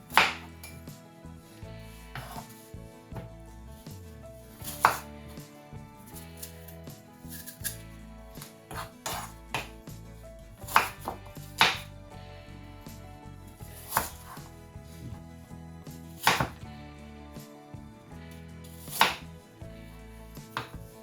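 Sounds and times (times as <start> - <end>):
knife striking cutting board: 0.1 - 0.8, 2.2 - 3.3, 4.6 - 5.1, 8.4 - 9.8, 10.7 - 11.9, 13.8 - 14.4, 16.2 - 16.6, 18.8 - 19.2, 20.5 - 20.7.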